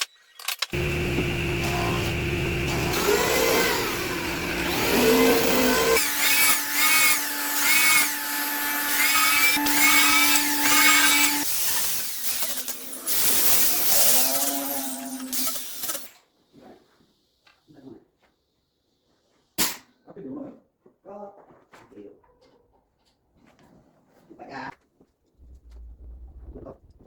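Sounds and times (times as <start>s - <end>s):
power tools working wood: 0.7s - 16.1s.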